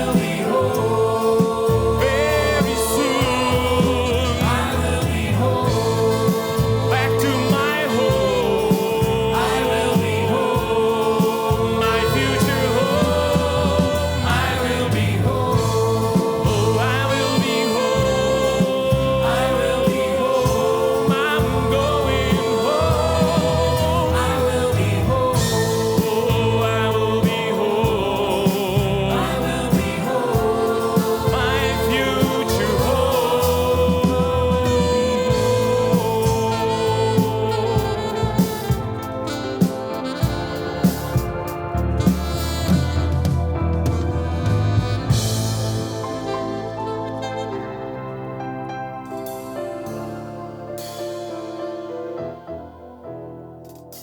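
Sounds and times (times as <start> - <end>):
choir singing gospel song: 0.0 - 54.0.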